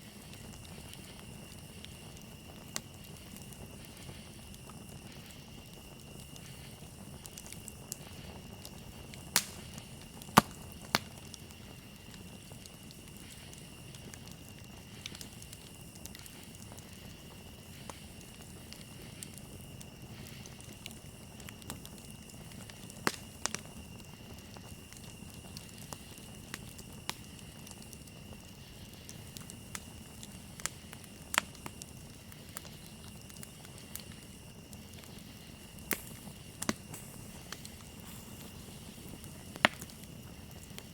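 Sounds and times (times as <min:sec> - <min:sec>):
campfire crackling and popping: 0:00.0 - 0:40.9
crickets trilling: 0:00.0 - 0:40.9.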